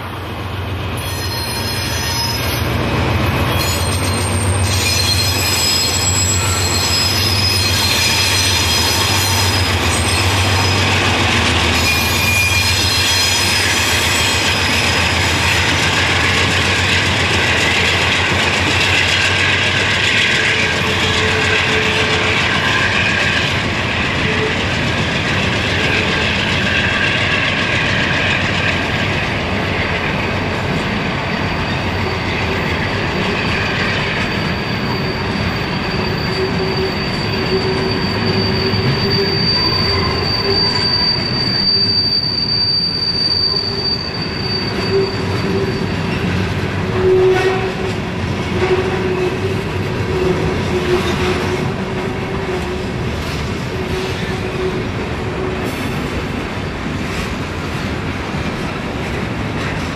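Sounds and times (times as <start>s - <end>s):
freight train wheels squealing: 0.8s - 59.9s
train wheel clacks: 1.6s - 41.4s
high thin screech: 11.8s - 14.8s, 34.3s - 46.1s.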